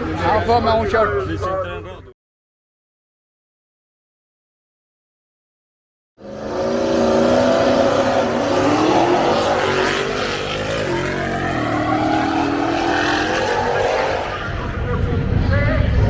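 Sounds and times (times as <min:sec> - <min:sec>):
race car engine revving: 0:06.2 - 0:16.0.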